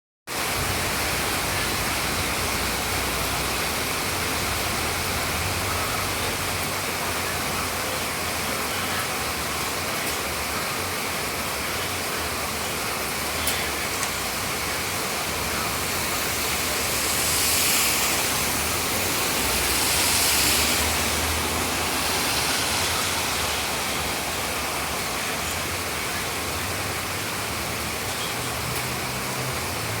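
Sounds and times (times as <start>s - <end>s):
steady rain hiss: 0.3s - 30.0s.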